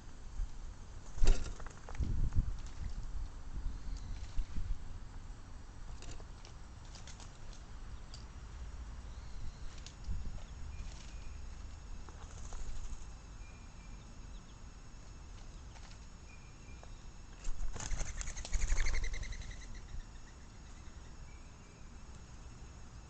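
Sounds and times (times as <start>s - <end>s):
bird wings flapping: 1.0s - 3.0s, 12.1s - 13.0s, 17.4s - 19.2s
faint bird chirps: 3.6s - 4.6s, 9.0s - 22.3s.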